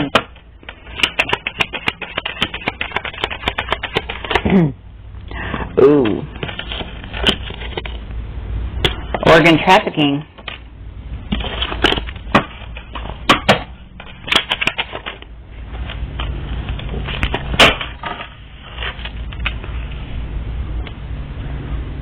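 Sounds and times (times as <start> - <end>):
cards snapping and clicking: 0.0 - 4.5
cards rustling: 0.0 - 4.6, 5.8 - 8.1, 11.3 - 13.2, 18.6 - 20.0.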